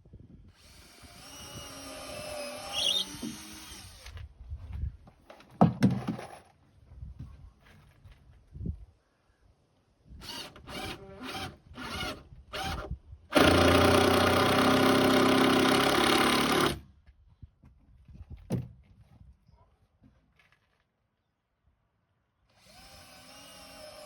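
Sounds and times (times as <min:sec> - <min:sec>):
power tool motor running: 0:00.6 - 0:04.1, 0:10.2 - 0:16.8.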